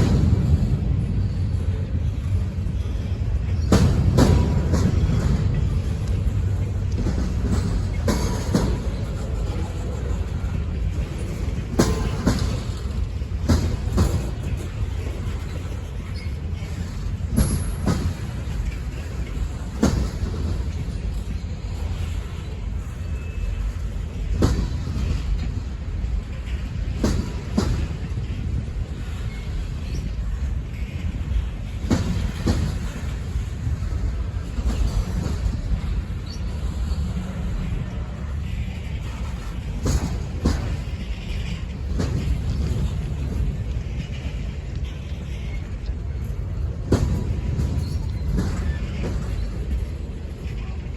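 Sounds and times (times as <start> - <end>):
train cars rumbling past: 0.0 - 50.9
wheels clicking over rail joint: 0.0 - 50.9
wheel clunks over rail joint: 3.6 - 9.6.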